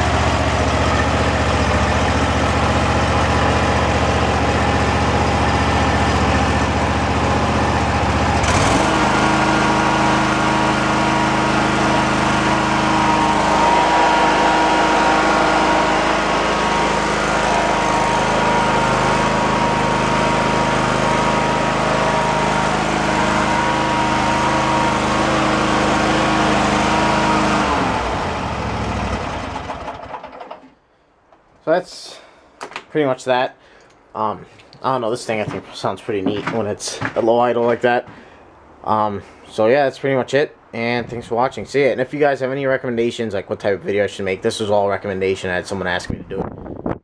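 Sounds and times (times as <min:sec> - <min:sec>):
lawn mower engine idling: 0:00.0 - 0:30.9.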